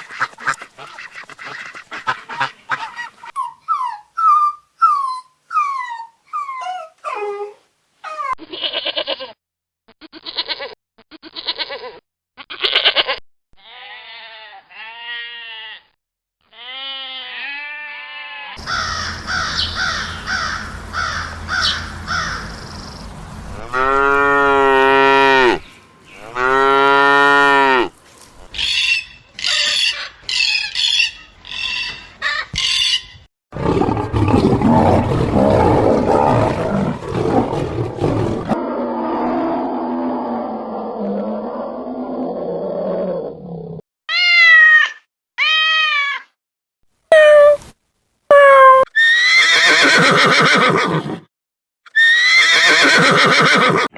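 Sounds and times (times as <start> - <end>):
animal calls: 0.0 - 8.4, 18.6 - 22.9.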